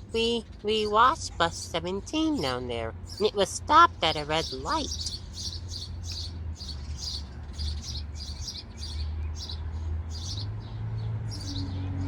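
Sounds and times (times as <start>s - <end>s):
low steady rumble: 0.0s - 7.6s
small bird chirping: 4.0s - 11.9s.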